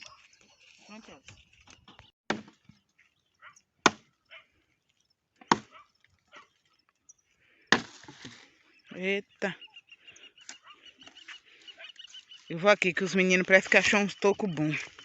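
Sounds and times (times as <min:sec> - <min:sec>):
branches splintering: 0:07.7 - 0:08.6.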